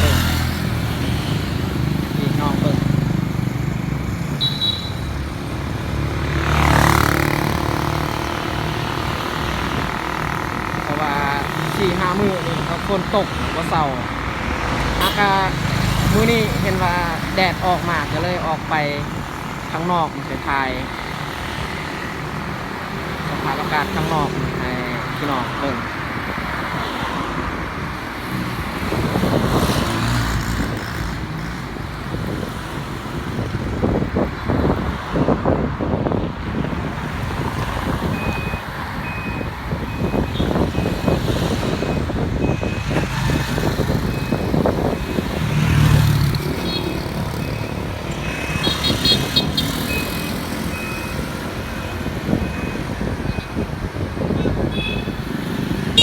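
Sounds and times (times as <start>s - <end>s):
vehicle passing by: 0.0s - 4.3s, 5.3s - 25.8s, 40.5s - 53.2s
road traffic: 0.0s - 56.0s
wind on microphone: 5.1s - 56.0s.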